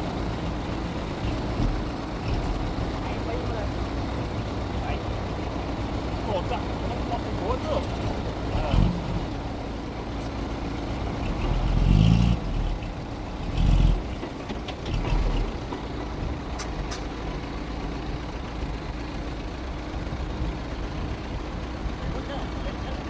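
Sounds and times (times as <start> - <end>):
bulldozer diesel engine running: 0.0 - 23.0.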